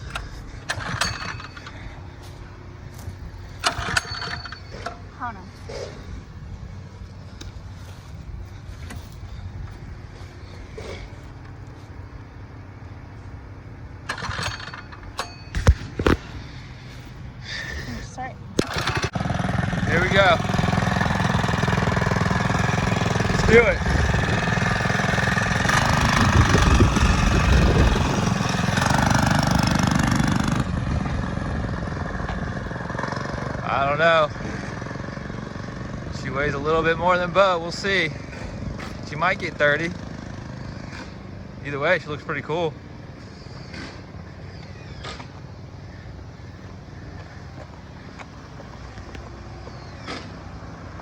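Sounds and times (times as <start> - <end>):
small motorbike engine running: 0.0 - 51.0
wind noise on microphone: 23.3 - 24.7, 25.8 - 28.8.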